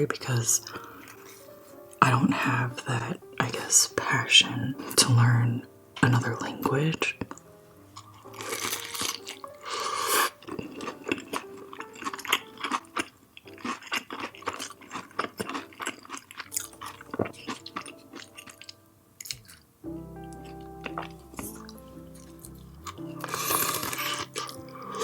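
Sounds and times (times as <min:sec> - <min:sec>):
chewing food: 0:07.1 - 0:25.0.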